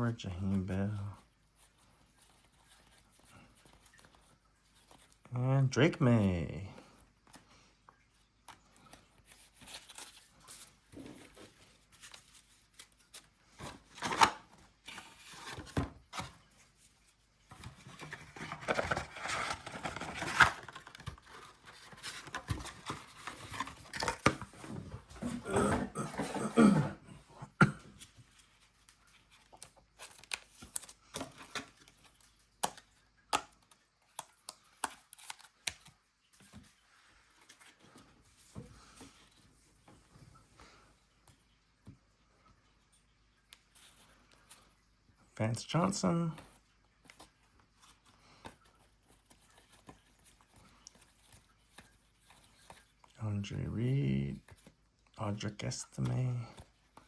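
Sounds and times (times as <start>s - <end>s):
wrapper tearing and crinkling: 18.6s - 21.4s.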